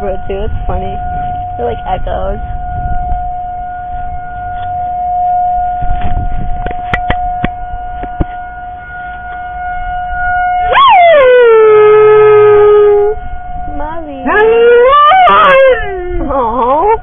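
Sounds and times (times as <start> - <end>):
siren wailing: 0.0 - 17.0
dog howling: 14.2 - 17.0.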